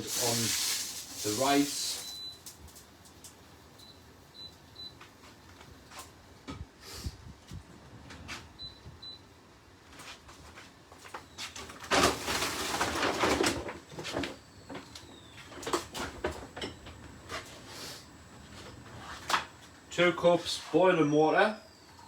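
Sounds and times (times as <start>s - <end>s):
rustling clatter: 11.6s - 14.3s.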